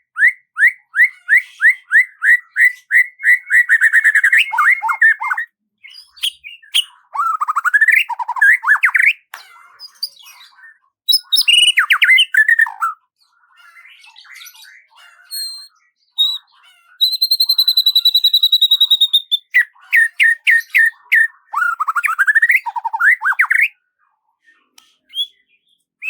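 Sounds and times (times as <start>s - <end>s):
songbird singing: 0.0s - 23.8s, 24.6s - 25.9s.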